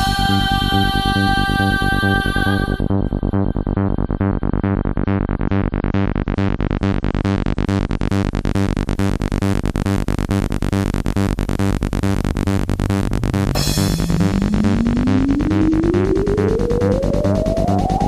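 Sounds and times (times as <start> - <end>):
electronic dance music loud: 5.7 - 18.0.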